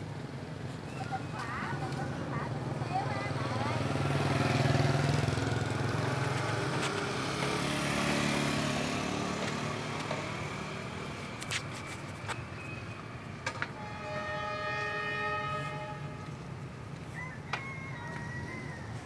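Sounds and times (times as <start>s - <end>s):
vehicle engine humming: 0.0s - 13.8s.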